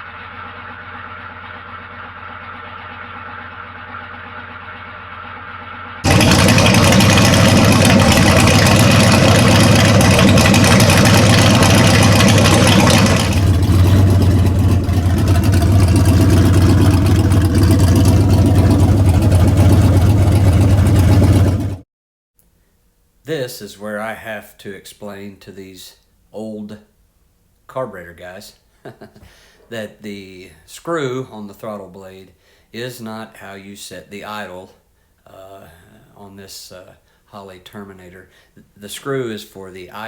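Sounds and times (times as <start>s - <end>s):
car engine idling: 0.0s - 21.8s.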